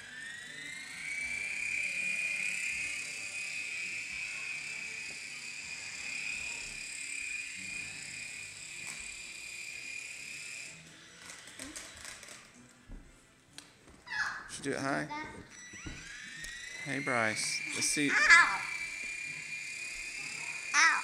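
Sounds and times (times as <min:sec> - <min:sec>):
toy helicopter motor whining: 0:00.0 - 0:12.6, 0:15.2 - 0:21.0.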